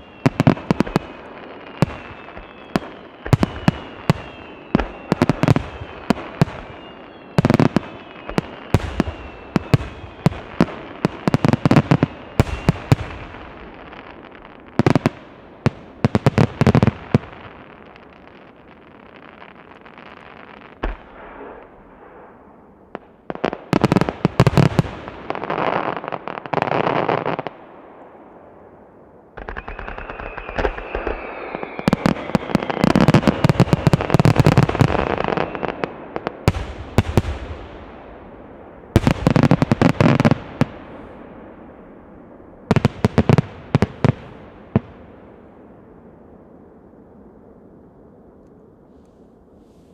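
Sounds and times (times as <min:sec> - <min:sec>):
high whistle: 0:00.0 - 0:00.5, 0:01.8 - 0:10.5, 0:12.2 - 0:12.9, 0:29.5 - 0:33.6
fireworks bursting and crackling: 0:00.0 - 0:46.4.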